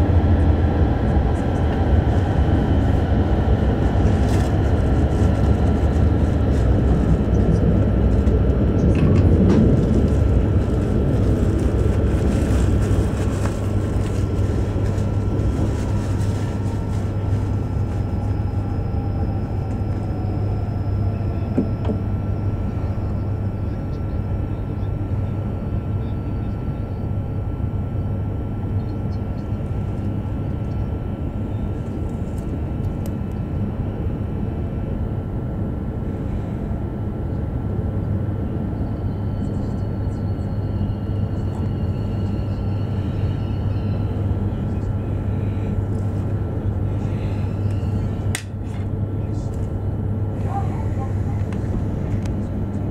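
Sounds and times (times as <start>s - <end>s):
train cabin hum and rumble: 0.0s - 52.9s
faint falling whine: 13.6s - 33.5s.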